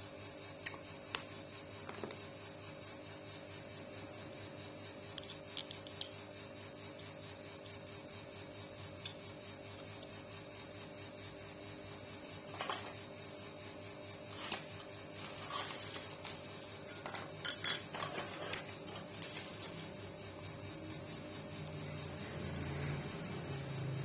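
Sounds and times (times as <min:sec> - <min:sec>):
faint steady hum: 0:00.0 - 0:24.0
metal parts scraping and rubbing: 0:14.3 - 0:20.0.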